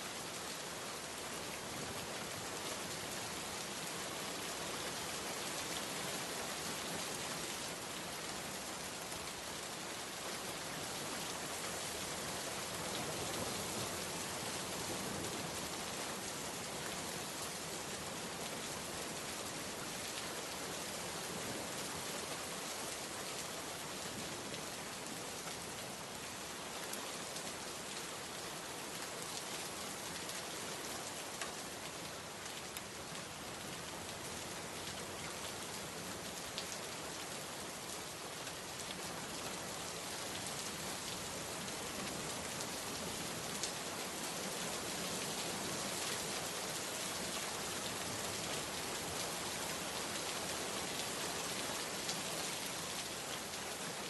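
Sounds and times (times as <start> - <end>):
heavy rain on a surface: 0.0 - 54.0.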